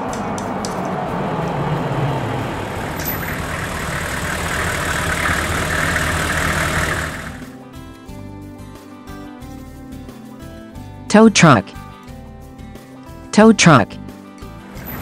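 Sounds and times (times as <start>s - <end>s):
engine running: 0.0s - 7.6s, 14.6s - 15.0s.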